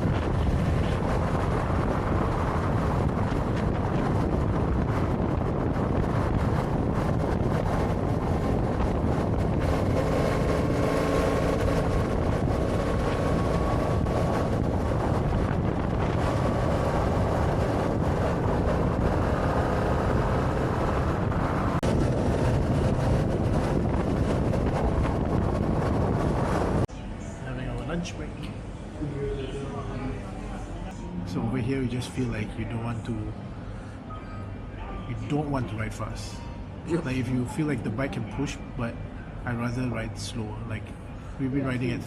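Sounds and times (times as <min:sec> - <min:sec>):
wind rushing over microphone: 0:00.0 - 0:26.9.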